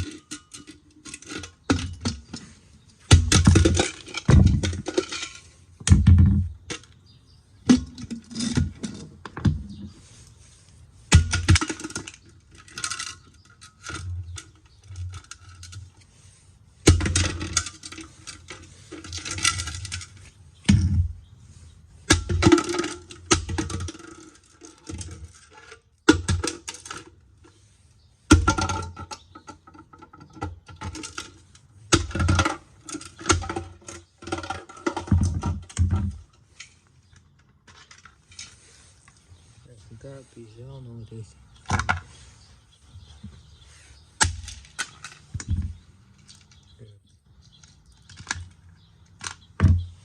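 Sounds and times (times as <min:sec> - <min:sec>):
plastic and metal parts clattering: 0:00.0 - 0:07.0, 0:11.1 - 0:16.1, 0:16.8 - 0:21.1, 0:22.1 - 0:27.6, 0:28.3 - 0:39.2, 0:41.6 - 0:42.1, 0:44.2 - 0:46.8, 0:47.5 - 0:50.0.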